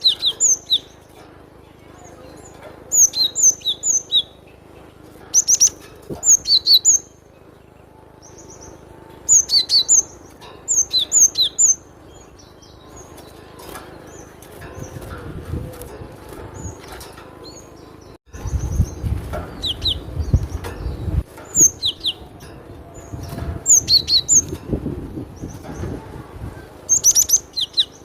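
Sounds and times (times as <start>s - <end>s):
bird singing high repeated notes: 2.0s - 15.1s, 17.4s - 24.6s.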